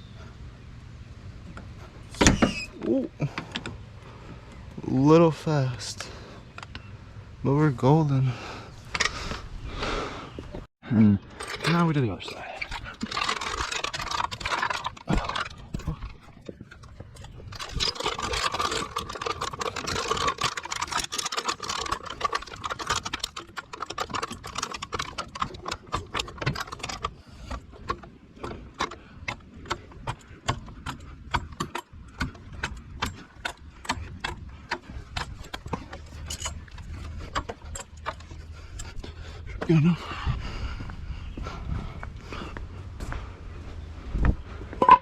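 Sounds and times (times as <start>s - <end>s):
scraping and handling noise: 10.5s - 39.7s
car jack clicking and knocking: 12.7s - 38.6s.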